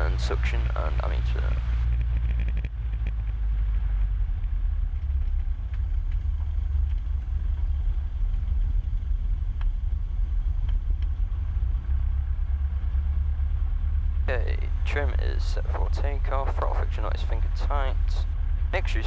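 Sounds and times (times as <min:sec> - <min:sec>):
aircraft engine low drone: 0:00.0 - 0:19.0
faint clicks: 0:01.8 - 0:03.8.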